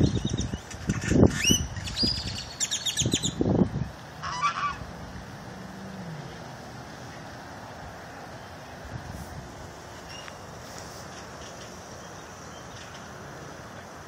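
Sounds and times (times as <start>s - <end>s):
birds whistling and chirping: 0.0s - 3.4s.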